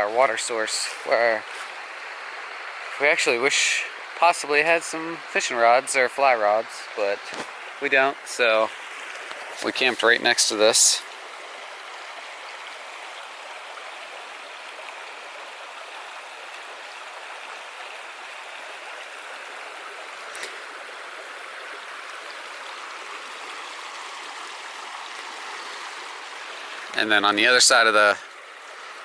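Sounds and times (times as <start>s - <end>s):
creek flowing over rocks: 0.0s - 29.0s.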